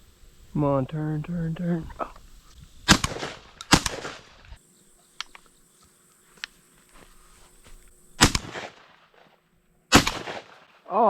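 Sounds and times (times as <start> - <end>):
shotgun shot: 2.9 - 4.4, 8.2 - 9.2, 9.9 - 10.9
faint clicks: 3.5 - 7.0.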